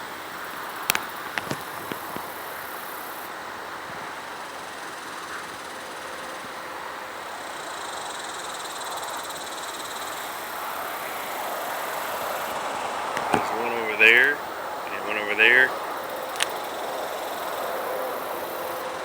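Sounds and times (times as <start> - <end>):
highway traffic hum: 9.6 - 19.0.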